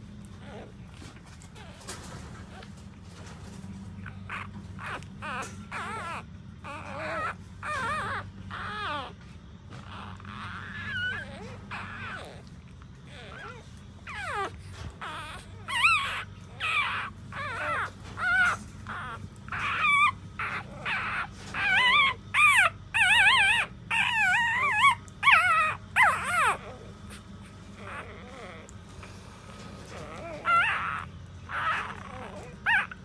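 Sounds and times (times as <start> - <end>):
puppies crying: 3.9 - 33.0.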